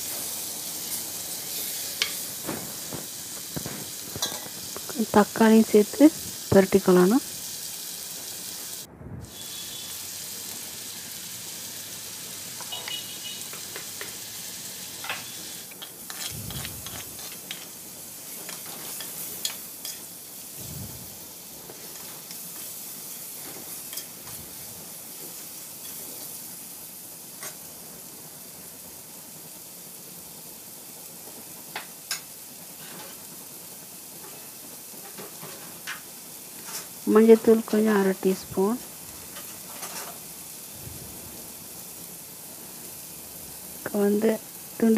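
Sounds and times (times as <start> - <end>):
vegetables sizzling in oil: 0.0 - 44.9
spoon scraping a pot: 12.6 - 13.4, 15.8 - 17.8.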